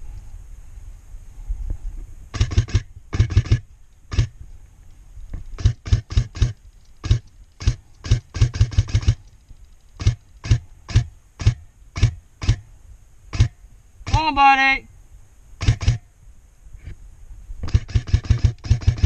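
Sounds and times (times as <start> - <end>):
airsoft gun shots: 2.3 - 4.4, 5.6 - 9.2, 10.0 - 12.7, 13.3 - 14.2, 15.6 - 16.1, 17.6 - 19.0.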